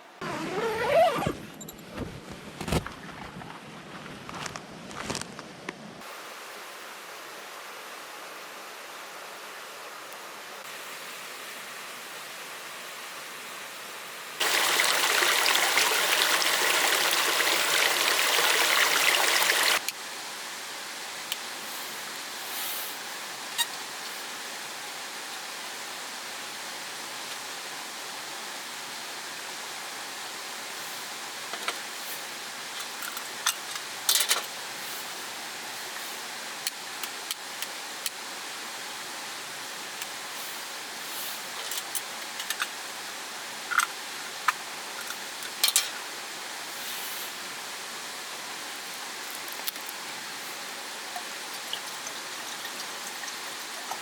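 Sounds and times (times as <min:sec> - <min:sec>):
mountain stream rushing: 0:06.0 - 0:22.4.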